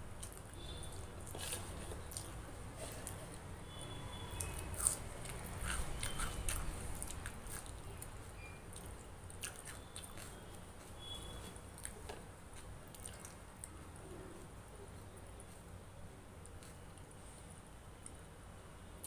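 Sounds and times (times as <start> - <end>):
person chewing with mouth smacks: 0.2 - 3.4, 4.3 - 13.8.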